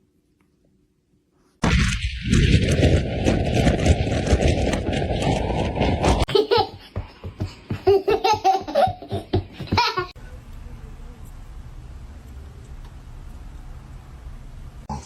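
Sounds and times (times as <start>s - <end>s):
loud rushing noise: 1.6s - 6.3s
person laughing hard: 6.3s - 10.2s.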